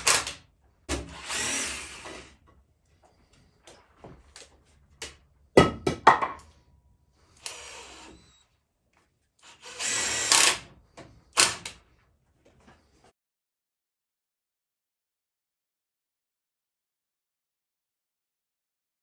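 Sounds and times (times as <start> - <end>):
power drill running: 0.0 - 0.4, 1.0 - 2.4, 7.2 - 8.5, 9.4 - 11.8.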